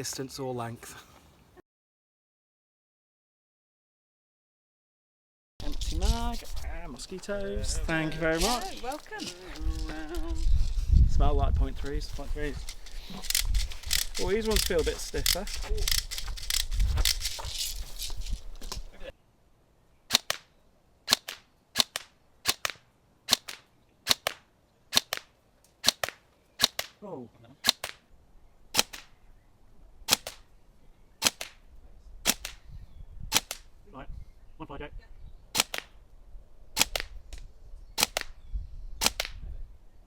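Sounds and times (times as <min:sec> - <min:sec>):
airsoft gun firing single shots: 0:20.1 - 0:20.5, 0:21.1 - 0:27.0, 0:27.6 - 0:28.1, 0:28.7 - 0:29.2, 0:30.1 - 0:30.5, 0:31.2 - 0:31.6, 0:32.2 - 0:32.6, 0:33.3 - 0:33.7, 0:35.5 - 0:36.0, 0:36.8 - 0:37.2, 0:38.0 - 0:38.4, 0:39.0 - 0:39.4.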